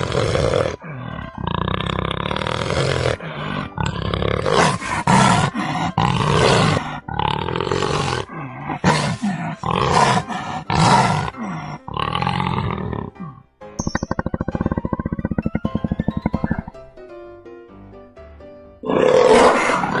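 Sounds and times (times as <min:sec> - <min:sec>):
leopard calling: 0:13.8 - 0:16.8.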